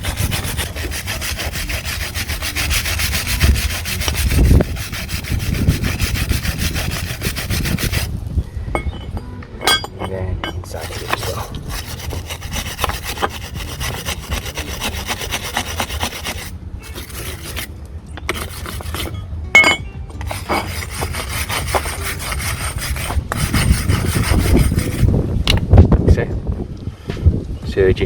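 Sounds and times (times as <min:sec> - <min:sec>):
wire brush scrubbing metal: 0:00.0 - 0:08.2, 0:09.7 - 0:17.7, 0:18.3 - 0:19.2, 0:20.2 - 0:25.1
metallic clink: 0:08.7 - 0:10.8, 0:19.0 - 0:20.7.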